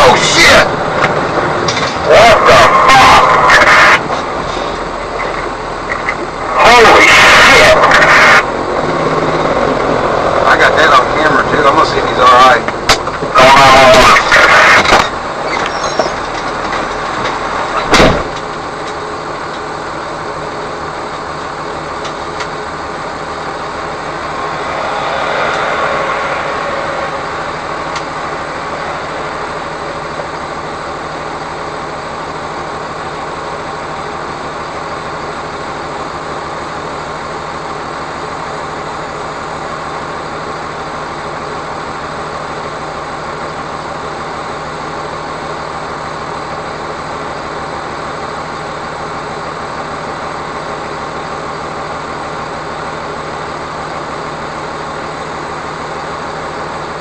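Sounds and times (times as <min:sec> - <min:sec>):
low drone: 0:00.0 - 0:18.2, 0:20.9 - 0:35.1
road noise: 0:00.0 - 0:57.0
truck engine: 0:00.0 - 0:57.0.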